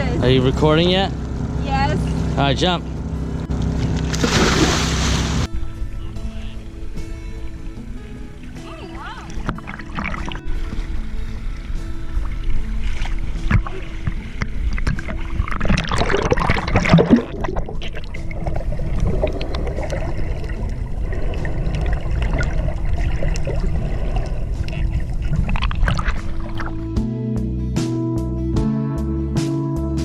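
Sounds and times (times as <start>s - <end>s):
water splashing around swimmers: 3.5s - 5.5s, 7.6s - 27.0s.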